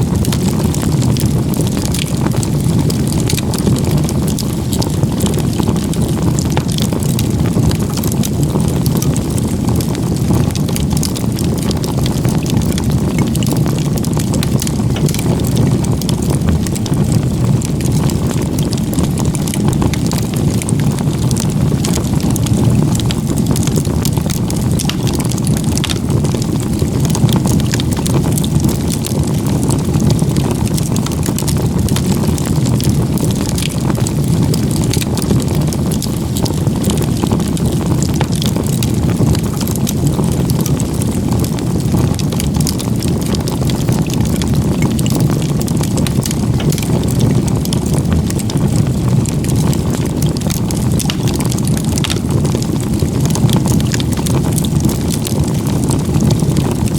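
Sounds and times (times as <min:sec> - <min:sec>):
campfire crackles and pops: 0:00.0 - 0:56.9
campfire flame rushing: 0:00.0 - 0:56.9.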